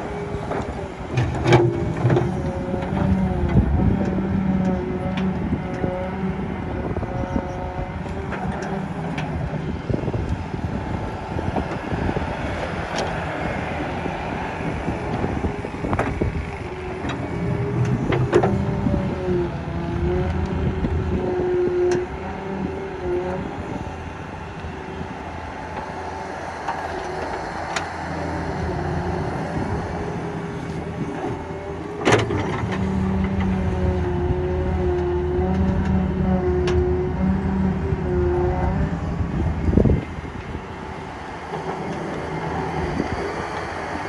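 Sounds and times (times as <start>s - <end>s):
excavator diesel engine running: 0.0s - 44.0s
hydraulic whine: 0.0s - 44.0s.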